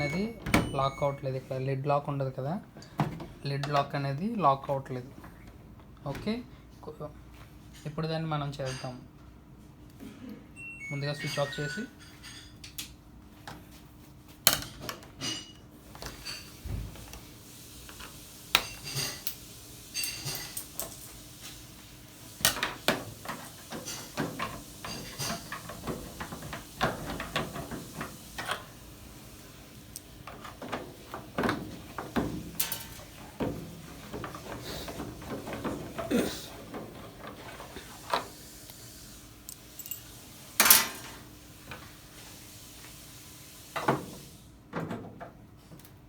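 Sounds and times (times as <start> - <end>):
tools and parts clattering: 11.2 - 12.9, 18.6 - 21.2, 22.4 - 28.7, 29.9 - 38.3, 39.5 - 41.2.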